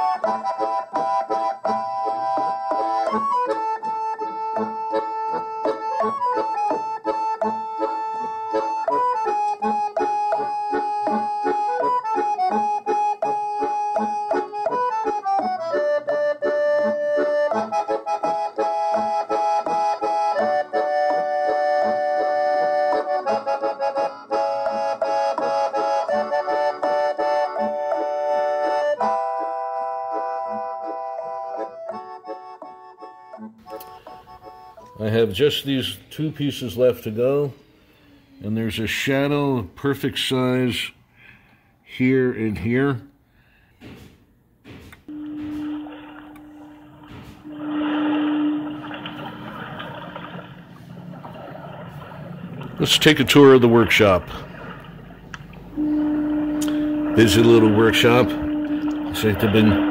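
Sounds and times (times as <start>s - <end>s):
lively accordion music: 0.0s - 37.5s, 45.0s - 48.8s, 55.3s - 59.9s.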